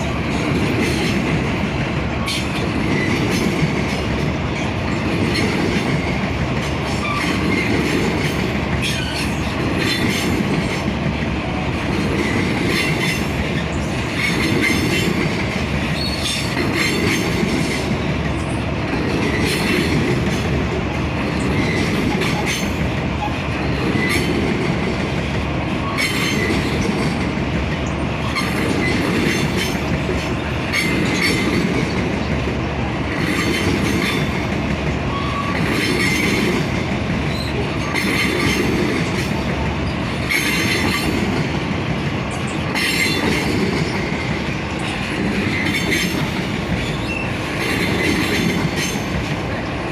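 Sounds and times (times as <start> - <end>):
wheels clacking over rail joints: 0.0 - 49.9
train wheel squeal: 4.6 - 10.9, 12.1 - 18.6, 21.3 - 24.6, 25.7 - 32.0, 33.2 - 41.4, 42.3 - 49.6.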